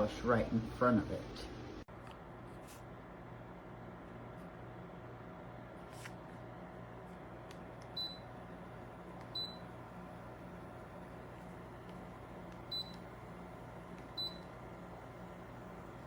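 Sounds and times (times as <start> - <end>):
air conditioner low hum: 0.0 - 16.0
air conditioner short high beeps: 7.9 - 8.4, 9.3 - 9.8, 12.6 - 13.2, 14.1 - 14.7.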